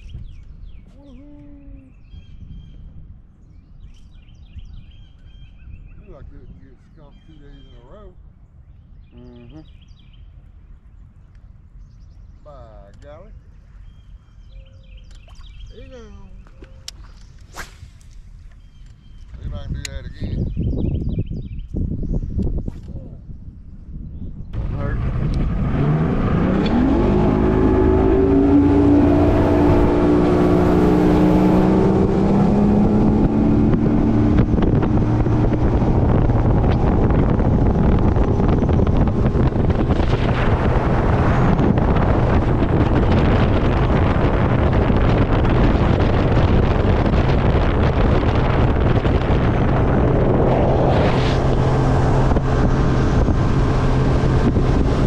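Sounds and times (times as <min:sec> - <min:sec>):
wind on microphone: 0:00.0 - 0:55.0
outboard motor accelerating: 0:24.6 - 0:55.0.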